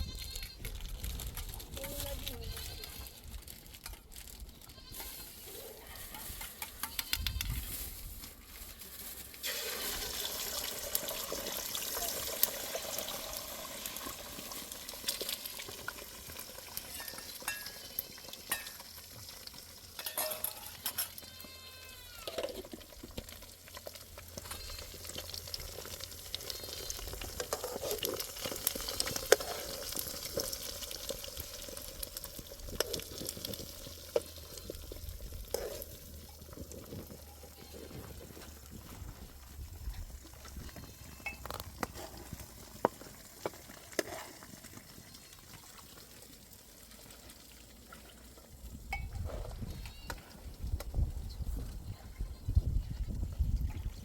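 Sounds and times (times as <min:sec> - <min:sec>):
utensil clicks and scrapes: 0:06.1 - 0:07.6, 0:26.4 - 0:30.7, 0:35.4 - 0:38.5, 0:40.4 - 0:44.8
food sizzling in a pan: 0:09.4 - 0:21.1, 0:22.2 - 0:36.0.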